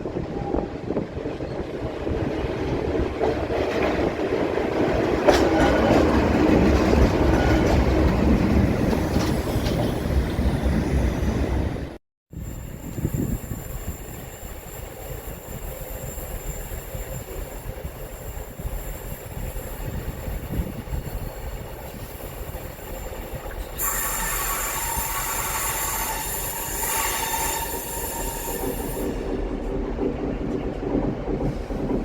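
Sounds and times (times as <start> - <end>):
train rumble: 0.0 - 32.0
train wheels squealing on rails: 8.8 - 29.7.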